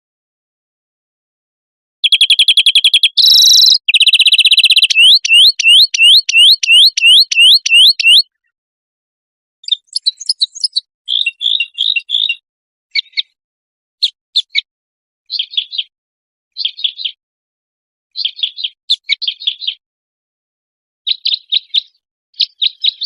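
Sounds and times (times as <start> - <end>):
songbird trilling and whistling: 2.0 - 8.3, 9.6 - 13.4, 16.6 - 17.2, 18.2 - 19.8, 21.1 - 23.0.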